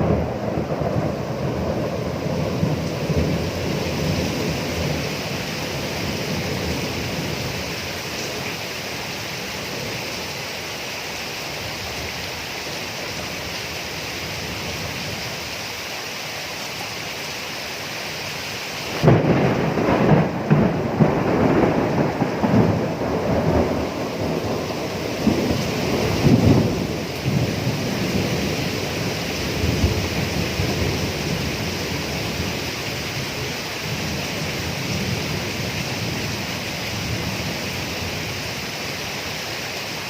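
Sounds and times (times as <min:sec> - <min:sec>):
thunder rumbling: 0:00.0 - 0:10.3, 0:18.9 - 0:38.6
steady rainfall: 0:00.0 - 0:40.0.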